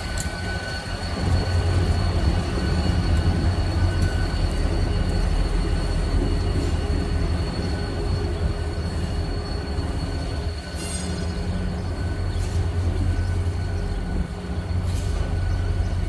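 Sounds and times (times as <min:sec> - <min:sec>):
train rumbling past: 0:00.0 - 0:16.0
train wheel squeal: 0:00.0 - 0:16.0.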